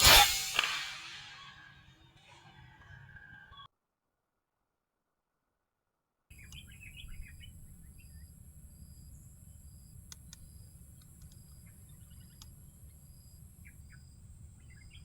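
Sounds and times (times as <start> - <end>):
high-pitched insect drone: 0.0 - 1.6
faint clicks: 6.3 - 14.0
small birds chirping: 6.3 - 15.0.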